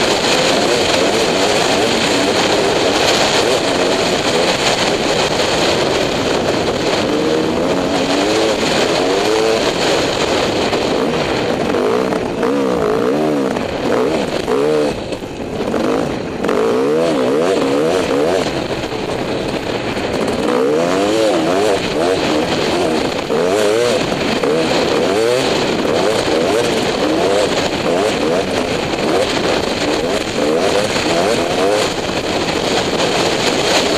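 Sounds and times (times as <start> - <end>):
dirt bike engine revving: 0.0 - 33.9
steady rushing noise: 0.0 - 33.9.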